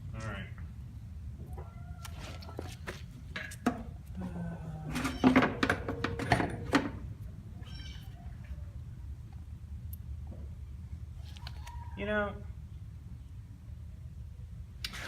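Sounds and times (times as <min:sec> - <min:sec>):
metal tools clinking and knocking: 0:05.0 - 0:07.0.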